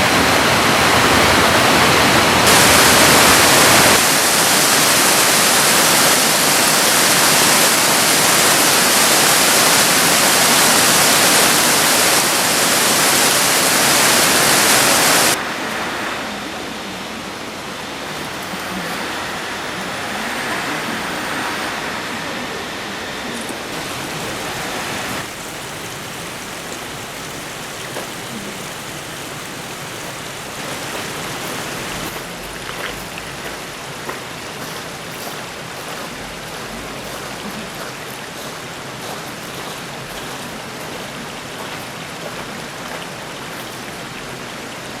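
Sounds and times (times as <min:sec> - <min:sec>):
river flowing: 0:00.0 - 0:45.0.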